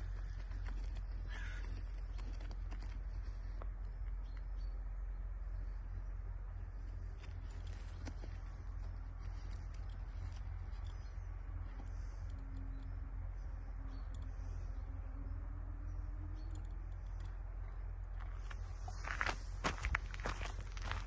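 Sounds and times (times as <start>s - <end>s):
faint hum: 0.0s - 21.0s
steady low rumble: 0.0s - 21.0s
footsteps on the ground: 18.1s - 21.0s.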